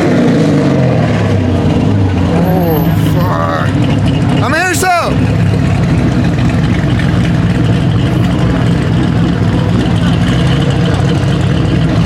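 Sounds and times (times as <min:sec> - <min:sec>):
car engines rumbling: 0:00.0 - 0:12.0
crowd chatter: 0:02.1 - 0:05.8.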